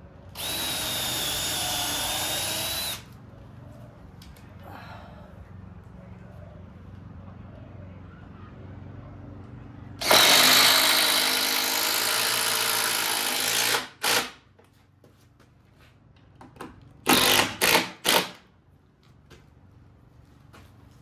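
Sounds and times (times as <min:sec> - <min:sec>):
power drill running: 0:00.3 - 0:03.1, 0:10.0 - 0:14.4, 0:17.1 - 0:18.4.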